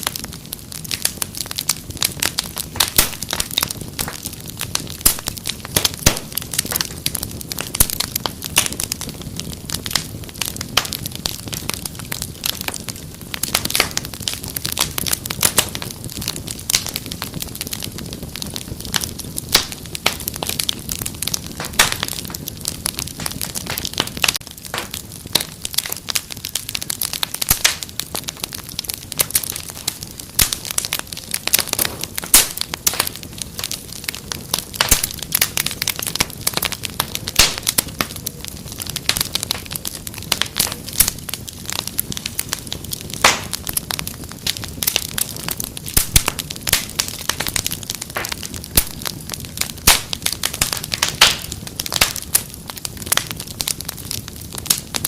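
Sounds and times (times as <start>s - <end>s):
low fire hiss: 0.0s - 55.0s
wood fire crackling and popping: 0.0s - 55.0s.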